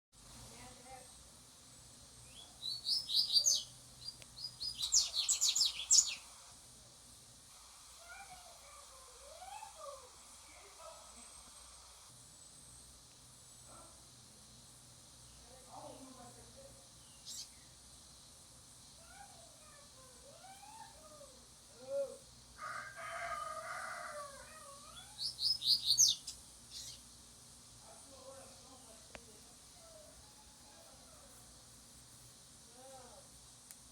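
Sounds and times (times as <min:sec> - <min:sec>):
bird chirping rapidly: 0:02.3 - 0:06.3, 0:17.0 - 0:17.6, 0:25.0 - 0:27.0
rooster crowing: 0:22.6 - 0:25.0, 0:30.0 - 0:31.3.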